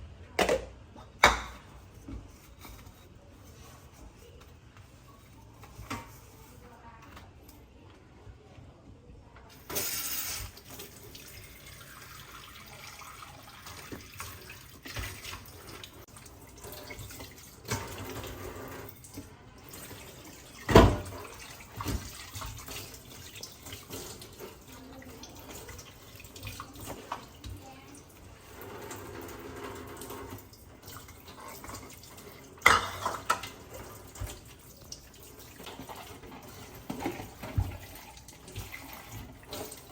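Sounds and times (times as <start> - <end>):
dishes and utensils clattering: 0.4 - 7.6, 9.5 - 39.9
tap water running into sink: 9.5 - 39.9.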